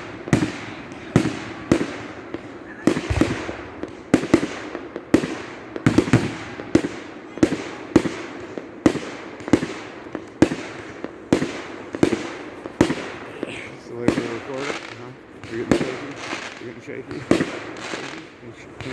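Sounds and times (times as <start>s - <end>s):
firework shells bursting: 0.0s - 18.9s
echoing rumble: 3.0s - 5.1s.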